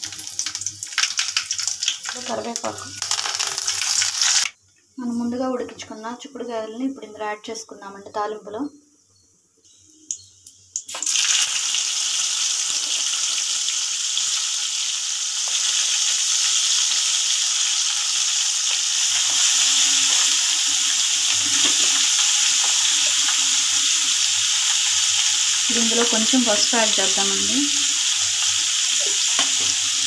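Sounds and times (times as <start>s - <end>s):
beans frying in hot oil: 0.0s - 4.6s, 9.9s - 30.0s.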